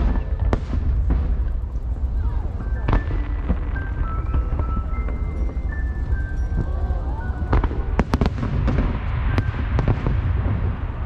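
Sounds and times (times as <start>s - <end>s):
fireworks bangs and pops: 0.0s - 6.7s, 7.4s - 11.0s
steady low rumble: 0.0s - 11.0s.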